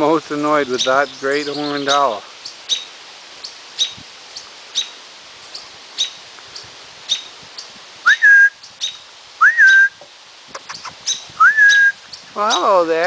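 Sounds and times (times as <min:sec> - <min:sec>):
loud rising bird whistles: 0:08.1 - 0:08.6, 0:09.4 - 0:10.0, 0:11.4 - 0:12.0
short sharp bird calls: 0:08.1 - 0:12.8.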